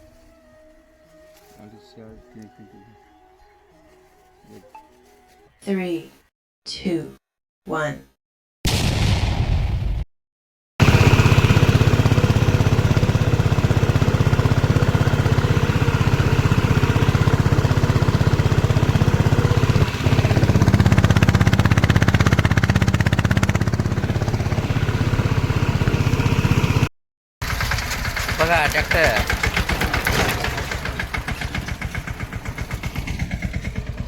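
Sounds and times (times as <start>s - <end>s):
small tractor engine running: 10.8s - 34.0s.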